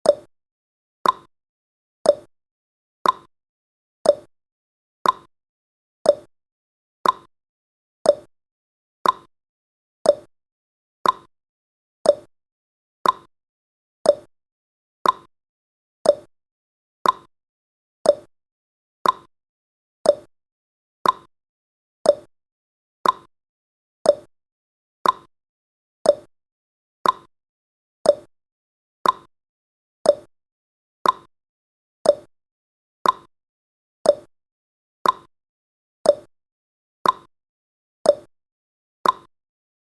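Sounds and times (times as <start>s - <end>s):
clock ticking: 3.0s - 3.3s, 5.0s - 5.3s, 7.0s - 7.3s, 9.0s - 9.3s, 11.0s - 11.3s, 13.0s - 13.3s, 14.1s - 14.3s, 15.0s - 15.3s, 16.1s - 16.3s, 17.0s - 17.3s, 18.1s - 18.3s, 19.0s - 19.3s, 20.1s - 20.3s, 21.0s - 21.3s, 22.1s - 22.3s, 23.0s - 23.3s, 24.1s - 24.3s, 25.0s - 25.3s, 26.1s - 26.3s, 27.0s - 27.3s, 29.0s - 29.3s, 30.1s - 30.3s, 31.0s - 31.3s, 32.1s - 32.3s, 33.0s - 33.3s, 34.1s - 34.3s, 35.0s - 35.3s, 36.1s - 36.3s, 37.0s - 37.3s, 39.0s - 39.3s.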